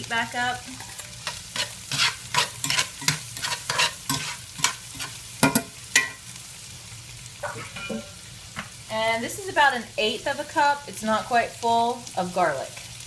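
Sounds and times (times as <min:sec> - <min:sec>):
onions sizzling in a pan: 0:00.0 - 0:13.0
utensil scraping a pan: 0:00.7 - 0:06.2, 0:07.4 - 0:08.3.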